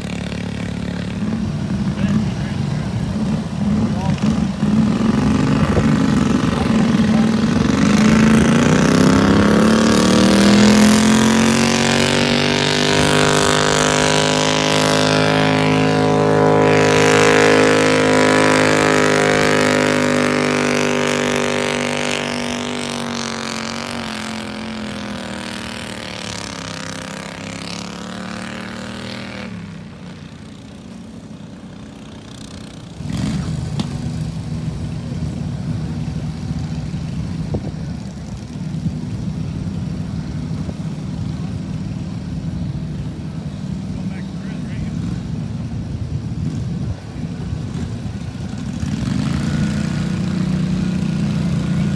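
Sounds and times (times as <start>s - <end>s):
garden tractor engine revving: 0.0s - 51.9s
low rough engine: 0.0s - 51.9s.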